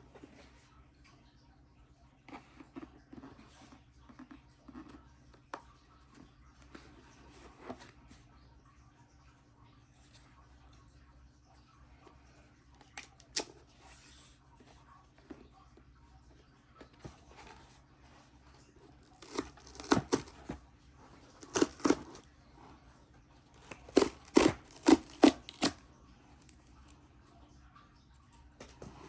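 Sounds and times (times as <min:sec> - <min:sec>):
packaging ripping: 0:19.1 - 0:20.6, 0:21.3 - 0:22.2, 0:23.6 - 0:25.8.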